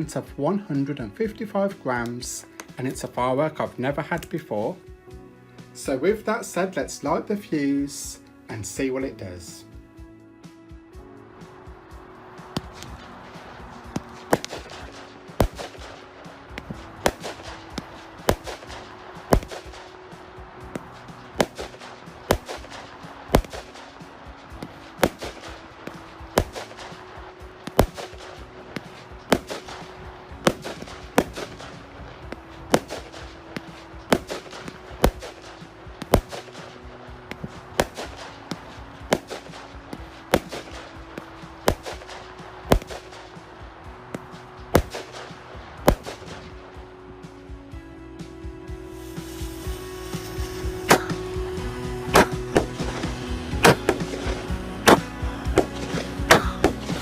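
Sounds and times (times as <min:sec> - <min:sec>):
firework barrage bangs: 0:12.5 - 0:43.4, 0:44.2 - 0:46.6.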